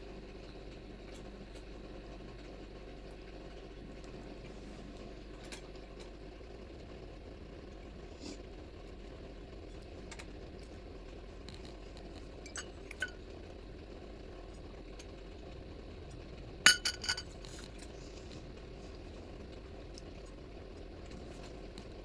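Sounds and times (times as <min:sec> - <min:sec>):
low background hum: 0:00.0 - 0:22.0
hard objects clinking: 0:16.7 - 0:17.3.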